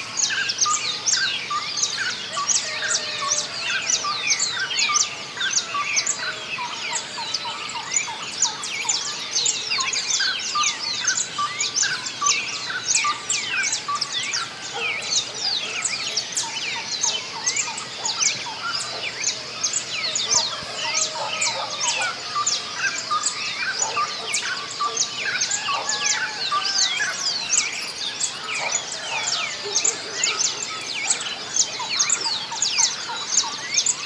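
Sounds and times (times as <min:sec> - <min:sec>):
many small birds singing: 0:00.0 - 0:34.0.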